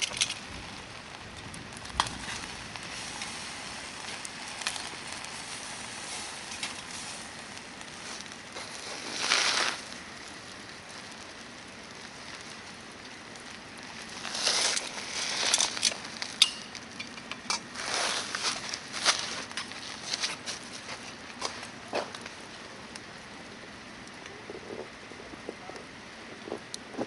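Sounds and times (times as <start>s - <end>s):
campfire hissing and crackling: 0.0s - 27.0s.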